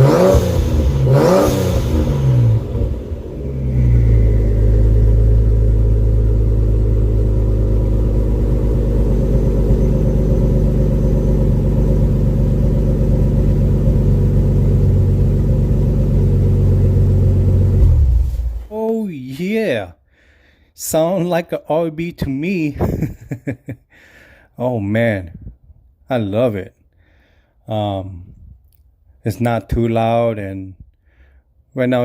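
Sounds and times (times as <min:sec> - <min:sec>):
car engine idling: 0:00.0 - 0:18.6.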